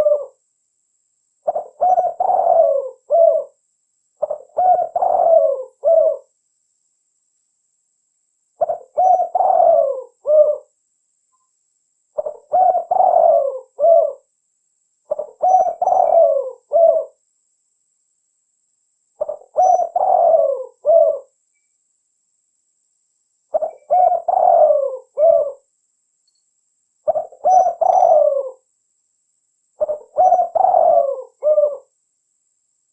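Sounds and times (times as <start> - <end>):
dove cooing: 0.0 - 0.4, 1.4 - 3.6, 4.2 - 6.3, 8.6 - 10.7, 12.2 - 14.3, 15.1 - 17.2, 19.2 - 21.3, 23.5 - 25.7, 27.0 - 28.7, 29.8 - 31.9.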